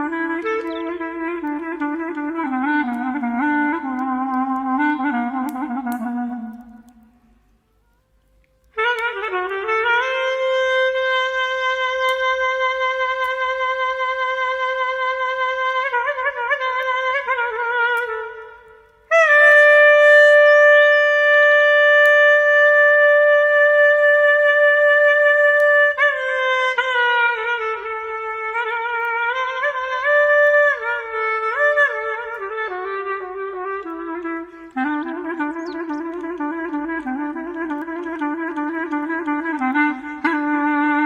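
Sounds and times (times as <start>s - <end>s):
solo clarinet melody: 0.0s - 7.1s, 7.7s - 41.0s.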